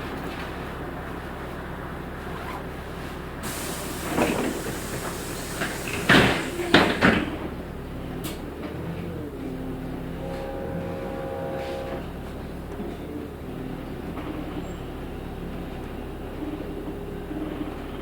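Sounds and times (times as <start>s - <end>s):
bus body knocking and clunking: 0.0s - 10.5s
bus engine humming: 0.0s - 18.0s
air hissing: 3.4s - 7.3s.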